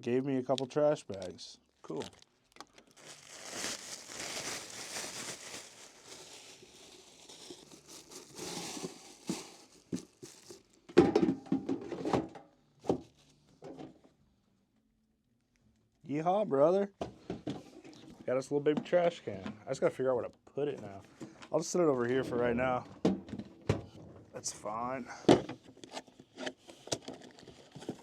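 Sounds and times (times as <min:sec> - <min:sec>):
plastic packaging crinkling: 0:01.1 - 0:10.9.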